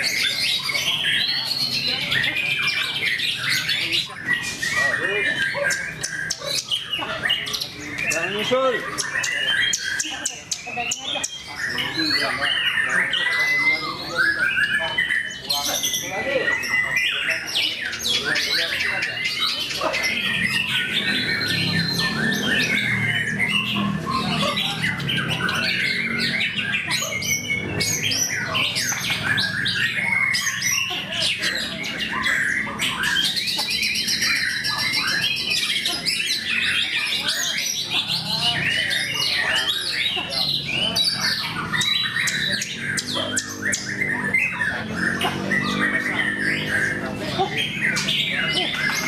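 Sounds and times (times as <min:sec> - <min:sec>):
songbird singing: 0:00.0 - 0:49.0.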